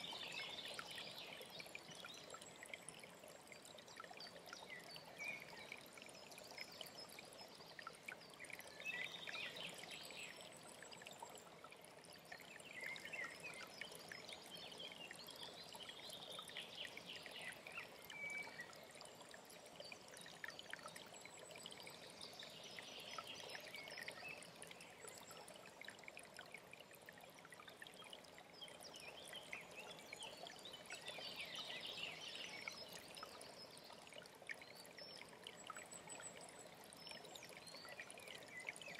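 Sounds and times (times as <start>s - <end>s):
stream running and trickling: 0.0s - 38.9s.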